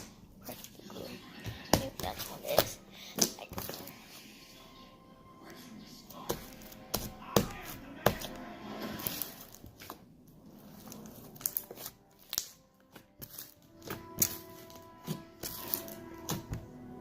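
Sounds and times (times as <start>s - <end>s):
crinkling: 9.0s - 16.6s.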